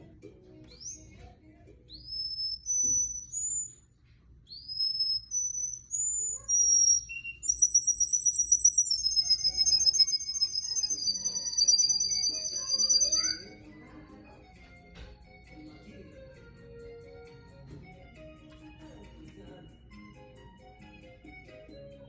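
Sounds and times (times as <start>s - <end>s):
canary singing: 0.0s - 14.5s.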